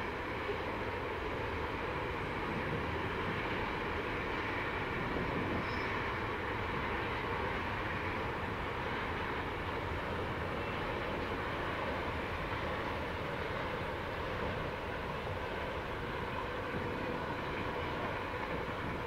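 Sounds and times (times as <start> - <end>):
steel wheels on rails: 0.0 - 19.0.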